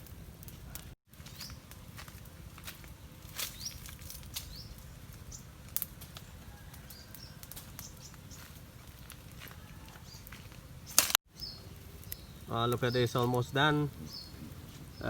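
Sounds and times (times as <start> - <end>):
rising bird chirps: 13.9 - 15.0.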